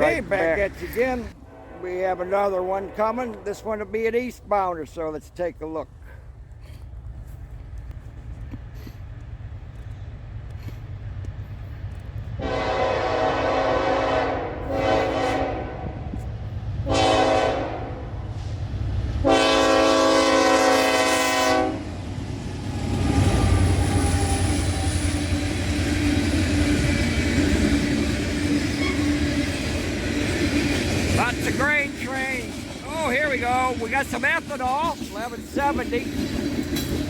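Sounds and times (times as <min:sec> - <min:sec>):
train wheels on track: 0:00.0 - 0:01.4, 0:02.0 - 0:37.0
locomotive engine rumble: 0:00.0 - 0:15.2, 0:18.2 - 0:37.0
locomotive horn blasts: 0:01.4 - 0:03.8, 0:12.4 - 0:16.1, 0:16.8 - 0:18.0, 0:19.2 - 0:21.9.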